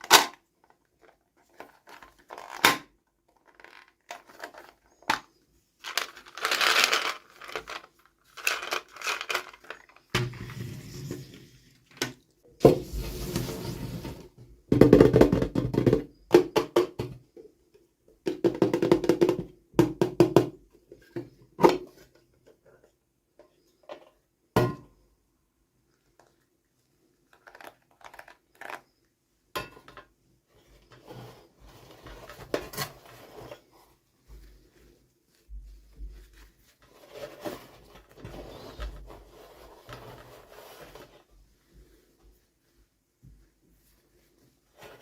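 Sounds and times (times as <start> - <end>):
plastic toys clicking and knocking: 0.0 - 10.1, 27.3 - 28.9
packaging rustling: 5.8 - 10.2.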